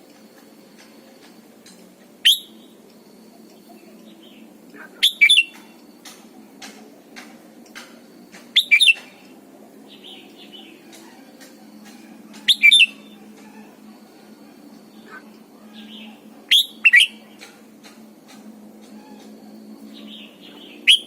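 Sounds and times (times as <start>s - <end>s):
bulbul singing whistled phrases: 2.2s - 6.2s, 8.5s - 9.2s, 11.8s - 13.2s, 14.9s - 17.5s, 19.1s - 21.0s.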